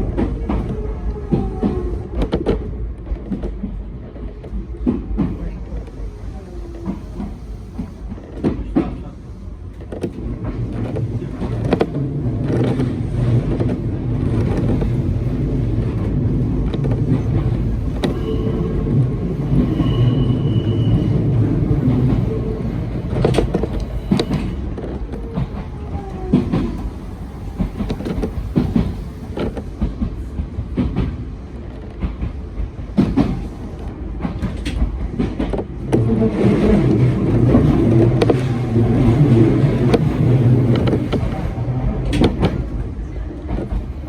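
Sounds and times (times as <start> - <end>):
train rumbling along track: 0.0 - 44.0
high squeal: 18.0 - 21.4
wheels clicking over rail joints: 21.9 - 44.0.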